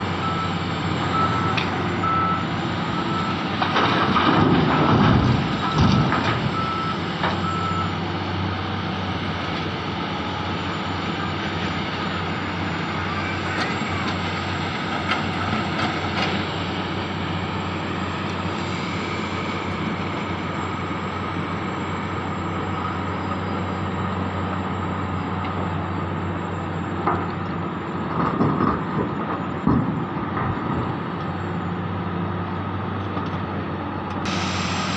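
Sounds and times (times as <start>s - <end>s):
heavy diesel machinery running: 0.0s - 34.9s
reversing alarm beeping: 0.2s - 3.5s, 5.6s - 8.0s, 9.9s - 28.1s.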